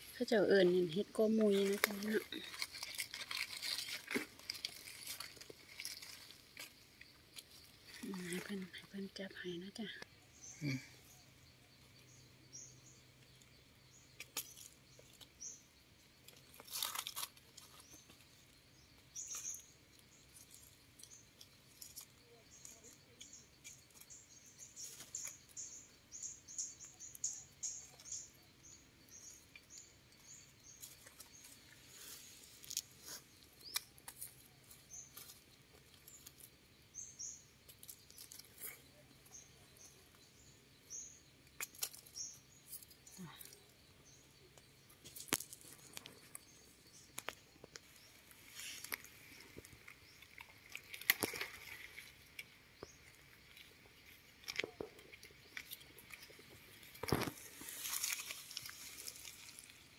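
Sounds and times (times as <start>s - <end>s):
dry leaf litter rustling: 0.0s - 8.6s, 45.0s - 54.7s, 55.4s - 59.9s
small birds chirping: 0.0s - 59.9s.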